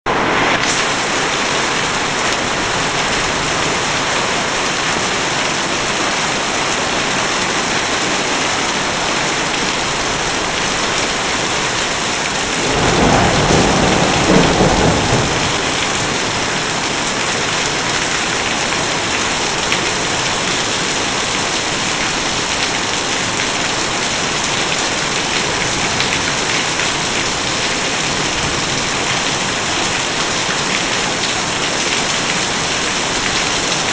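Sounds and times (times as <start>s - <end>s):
heavy rain hissing on surfaces: 0.1s - 33.9s
low rumble of thunder: 12.4s - 18.0s.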